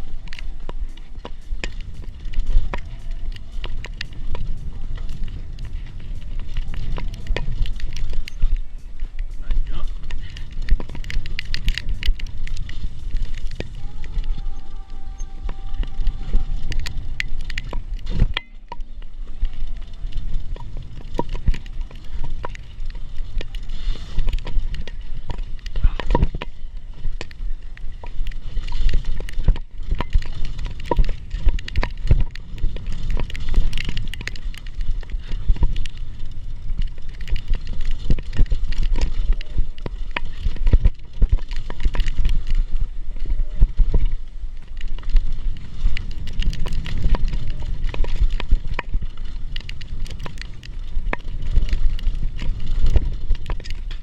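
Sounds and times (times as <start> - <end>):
low rumble: 0.0 - 41.5
bike rattling clicks: 0.0 - 54.0
tyres rolling over dirt and rock: 0.0 - 54.0.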